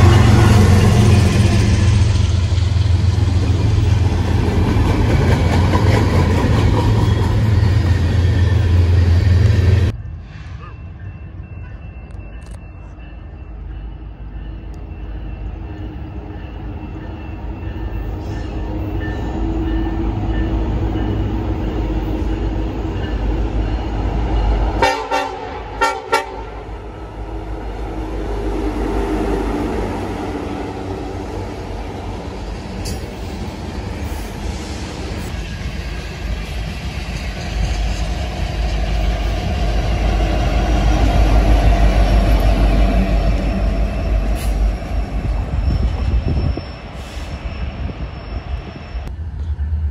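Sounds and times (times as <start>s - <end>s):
freight train rumbling past: 0.0s - 49.9s
train air horn blast: 24.8s - 26.9s.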